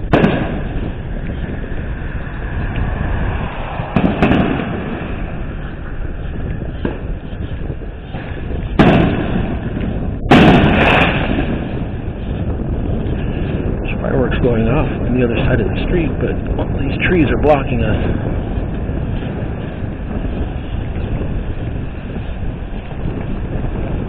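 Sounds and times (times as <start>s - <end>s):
fireworks exploding: 0.0s - 13.8s
wind noise on microphone: 0.0s - 24.0s.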